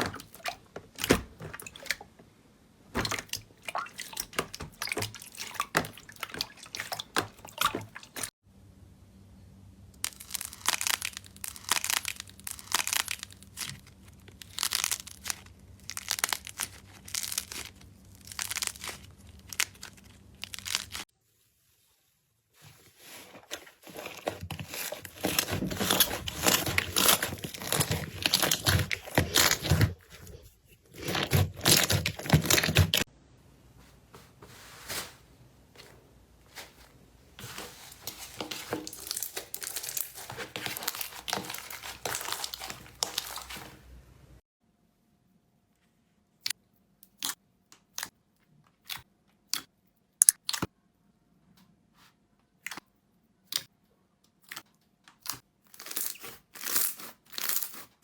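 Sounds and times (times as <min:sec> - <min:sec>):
slime crackling and crinkling: 0:10.0 - 0:21.1, 0:22.6 - 0:33.1, 0:36.5 - 0:44.0.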